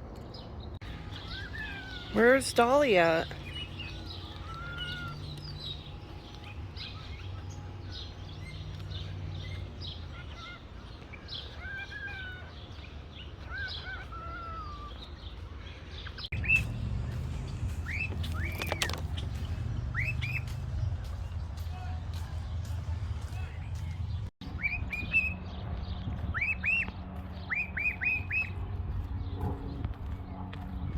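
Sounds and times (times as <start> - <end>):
birds chirping: 0.0 - 30.9
steady low rumble: 16.2 - 30.9.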